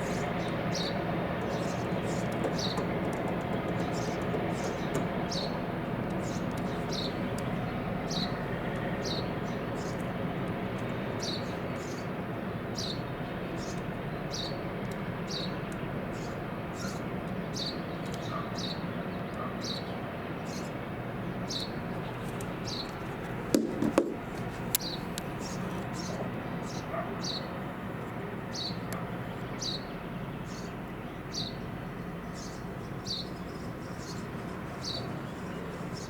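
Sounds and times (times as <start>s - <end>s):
boat diesel engine humming: 0.0s - 36.0s
brief knock: 23.5s - 24.2s.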